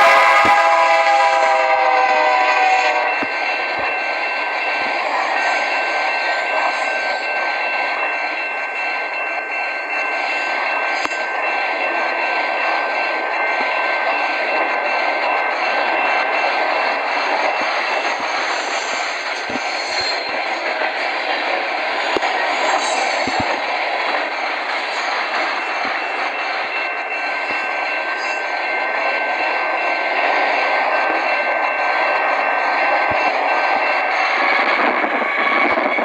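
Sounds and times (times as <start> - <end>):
train horn blast: 0.0 - 3.2.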